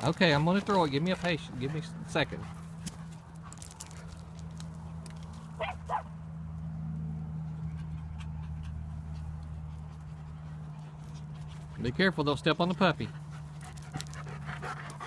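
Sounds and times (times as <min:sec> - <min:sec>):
dog yipping: 0:05.6 - 0:06.1.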